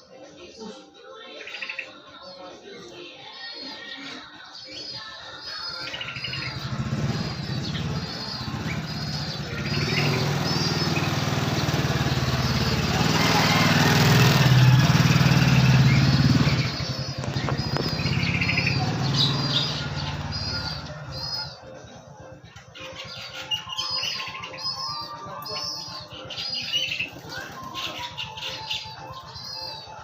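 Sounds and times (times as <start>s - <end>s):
small bird chirping: 4.8s - 30.0s
passing engine hum: 6.3s - 21.5s.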